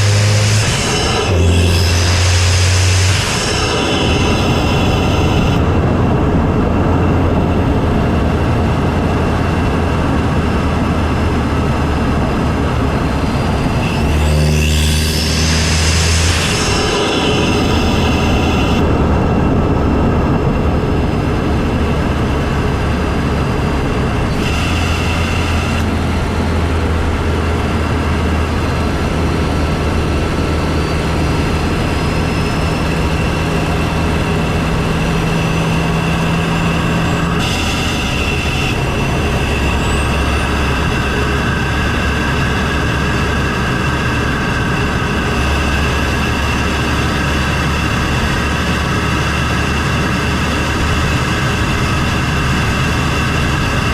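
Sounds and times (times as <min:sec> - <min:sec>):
engine and intake rush: 0:00.0 - 0:53.9
faint whine rising in pitch: 0:00.0 - 0:53.9.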